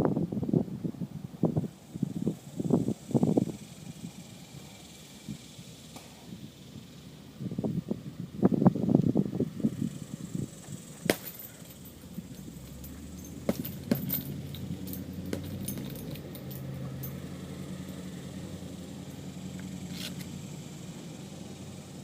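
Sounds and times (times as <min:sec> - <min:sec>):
steady low hum: 0:00.0 - 0:22.0
heavy bag thuds: 0:13.2 - 0:16.2.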